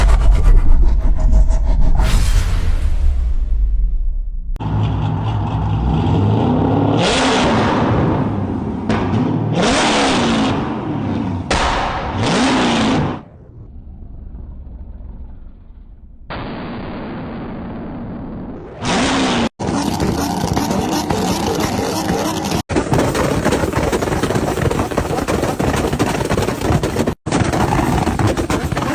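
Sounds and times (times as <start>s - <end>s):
car engine revving: 4.6s - 16.3s, 18.8s - 22.6s.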